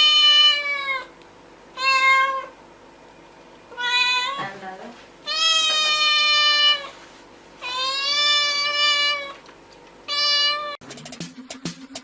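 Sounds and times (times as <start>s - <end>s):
cat meowing: 1.8s - 2.5s, 3.7s - 4.5s, 5.3s - 6.9s, 7.6s - 9.4s, 10.1s - 10.8s.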